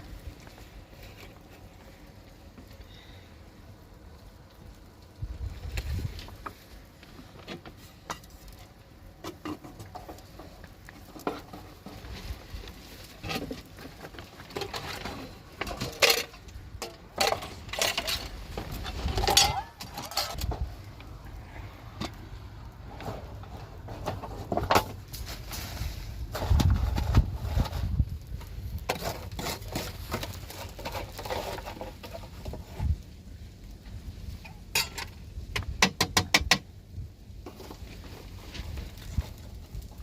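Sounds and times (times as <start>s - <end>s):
hard objects clinking and clattering: 13.2s - 20.7s.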